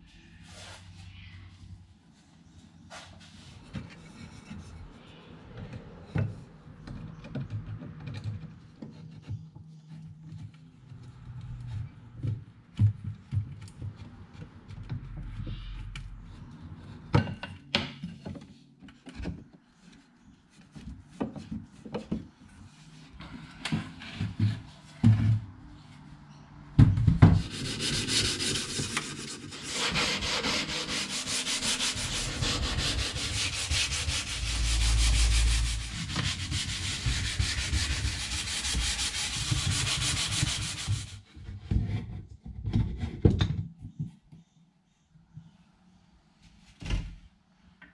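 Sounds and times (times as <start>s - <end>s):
wood sanding: 27.4s - 41.2s.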